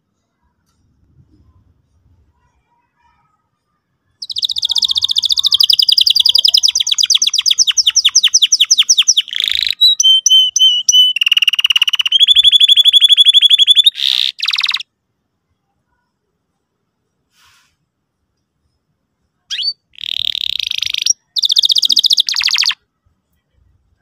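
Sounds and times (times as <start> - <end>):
canary singing: 4.1 - 14.9, 19.5 - 22.8.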